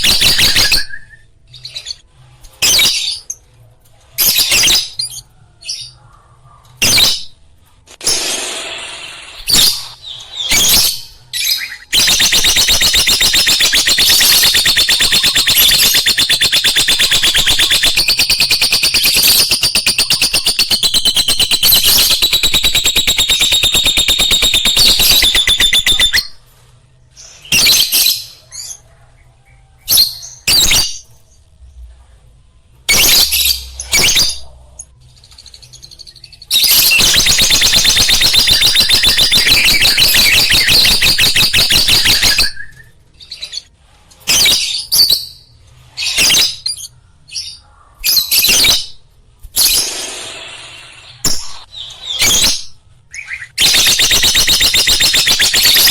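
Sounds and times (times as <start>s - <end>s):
lovebirds fast chattering: 12.0s - 26.2s.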